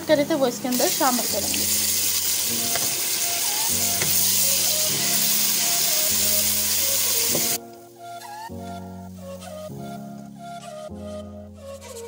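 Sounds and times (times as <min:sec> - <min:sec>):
soft background music: 0:00.0 - 0:12.0
vegetables sizzling in hot oil: 0:00.5 - 0:07.6.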